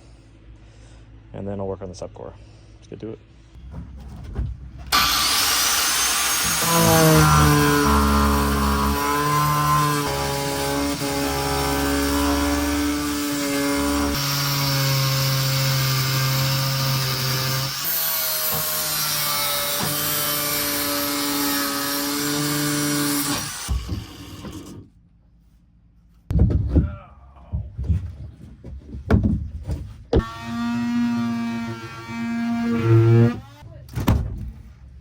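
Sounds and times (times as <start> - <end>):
angle grinder cutting: 4.9 - 24.9, 30.2 - 33.6.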